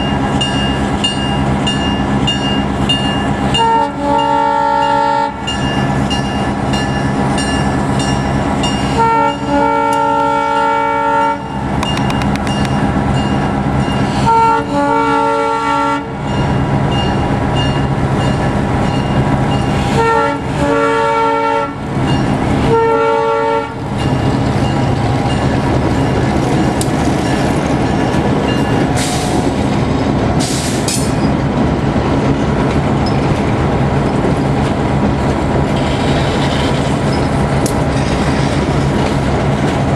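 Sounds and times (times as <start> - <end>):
train wheel noise: 0.0 - 39.9
locomotive chime horn blasts: 3.5 - 5.8, 8.7 - 11.9, 14.1 - 16.6, 19.8 - 23.8
locomotive engine rumble: 11.5 - 39.9.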